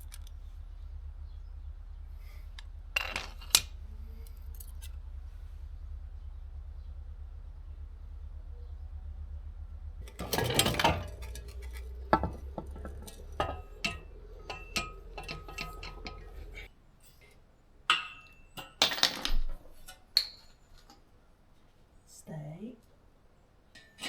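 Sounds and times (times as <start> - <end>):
low steady hum: 0.0 - 16.7
metal clanking and clinking: 0.0 - 17.2, 17.9 - 21.0.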